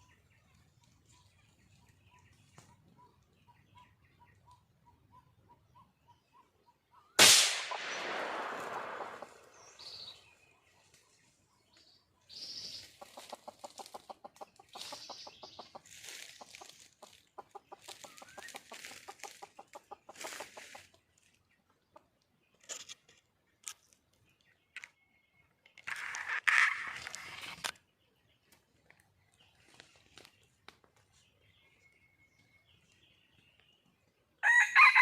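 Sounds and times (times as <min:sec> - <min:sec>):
hen clucking: 0:12.7 - 0:21.1.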